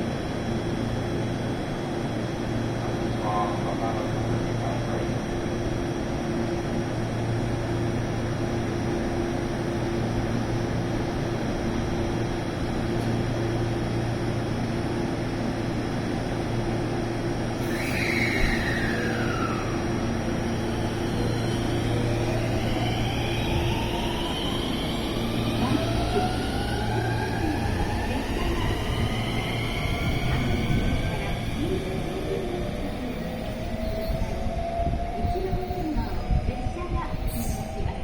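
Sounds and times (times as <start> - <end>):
electric train rumble and hum: 0.0 - 38.0
train motor whine: 17.5 - 36.3.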